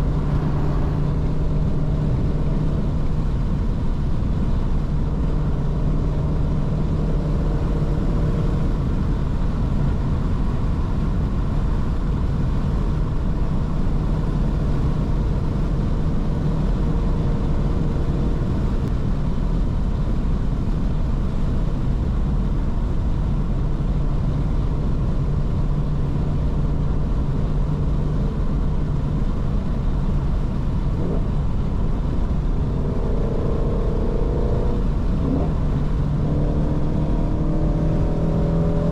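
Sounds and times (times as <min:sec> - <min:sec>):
higher engine tone: 0:00.0 - 0:08.2, 0:25.3 - 0:38.9
car engine cruising: 0:00.0 - 0:38.9
road and tyre noise: 0:00.0 - 0:38.9.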